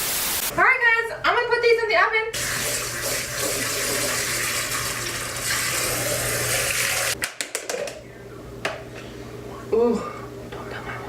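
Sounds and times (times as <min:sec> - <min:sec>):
tap running water: 0:02.4 - 0:07.2.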